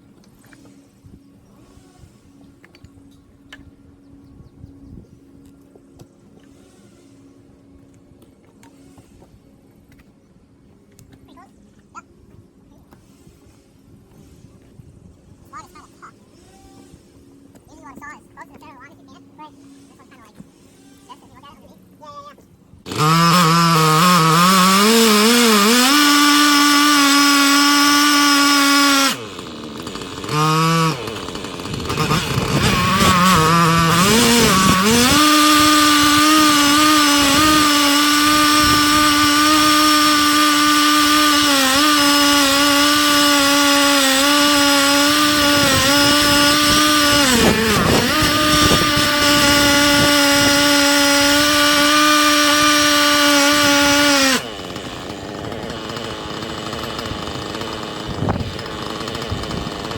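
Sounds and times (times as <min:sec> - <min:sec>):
chainsaw cutting log: 0:19.4 - 0:59.9.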